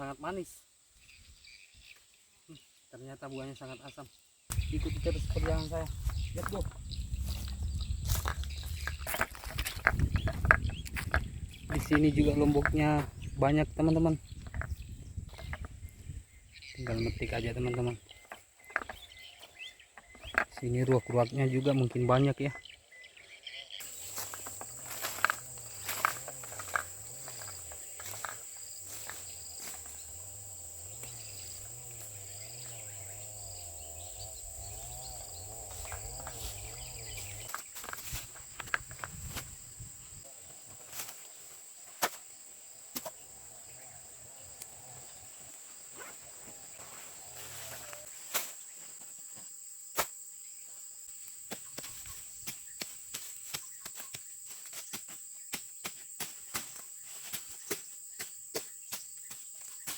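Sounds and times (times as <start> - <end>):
insects droning: 0.0 - 59.9
footsteps through vegetation: 4.5 - 13.2, 23.8 - 43.3, 45.3 - 59.9.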